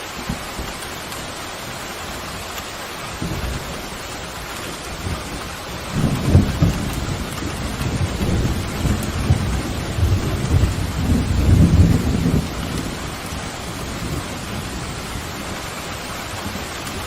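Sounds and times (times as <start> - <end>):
heavy rain hissing: 0.0 - 17.0
rolling thunder rumbling: 3.1 - 15.8.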